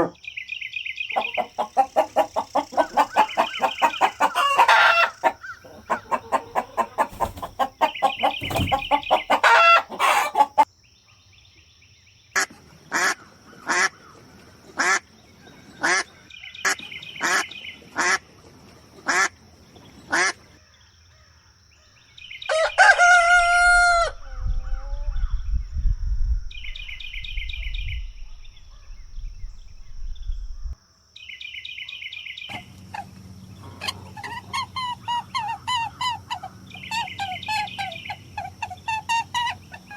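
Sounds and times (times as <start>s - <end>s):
chickens clucking: 1.1s - 10.7s, 32.5s - 39.9s
chickens short sharp calls: 1.1s - 10.7s, 32.5s - 39.9s
rooster crowing: 1.2s - 10.7s, 22.5s - 25.0s.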